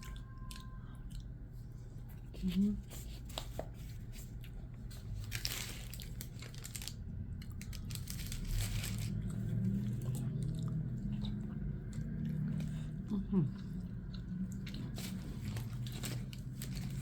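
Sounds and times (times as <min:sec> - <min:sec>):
food wrapping crinkling and tearing: 0:02.4 - 0:10.8, 0:14.5 - 0:17.0.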